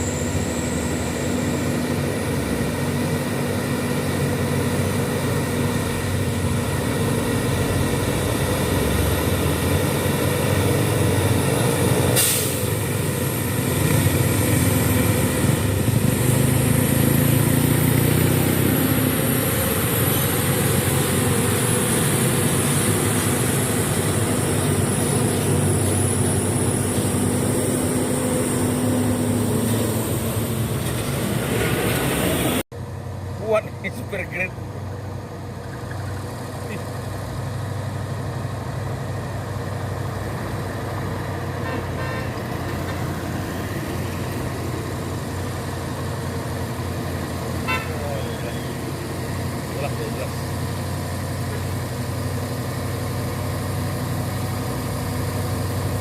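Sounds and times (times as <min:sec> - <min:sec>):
truck diesel engine under load: 0:00.0 - 0:56.0.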